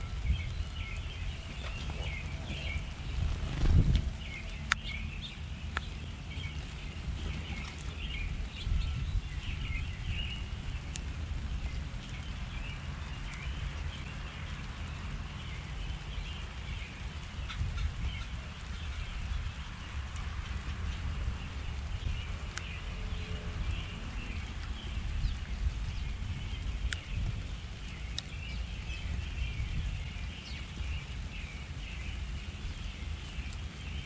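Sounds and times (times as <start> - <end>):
low rumble: 0.0 - 13.9
birds chirping and twittering: 0.0 - 34.0.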